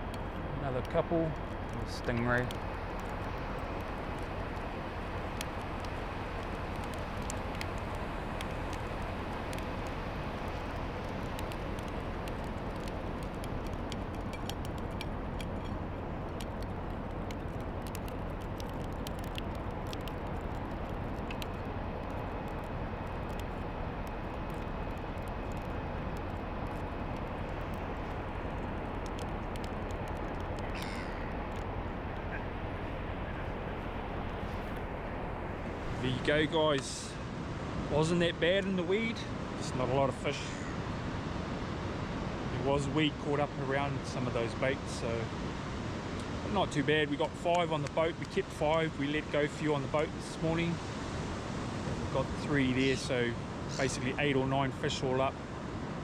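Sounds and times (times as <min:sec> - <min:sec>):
winch running: 0:00.0 - 0:36.5
light clicks: 0:00.0 - 0:36.9.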